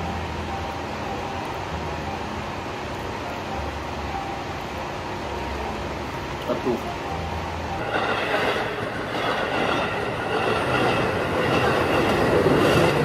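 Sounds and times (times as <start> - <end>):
crossing warning bell ringing: 6.9 - 13.0
train wheels rumbling on rails: 7.7 - 13.0.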